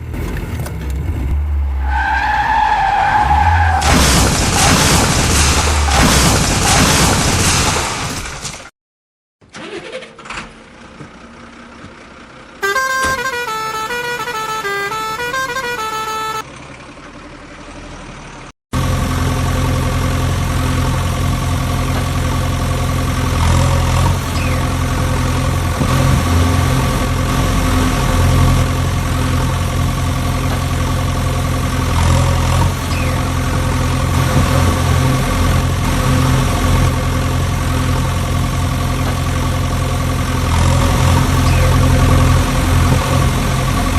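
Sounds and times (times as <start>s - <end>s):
truck engine running: 10.5s - 43.9s
vehicle horn playing a tune: 12.6s - 16.5s.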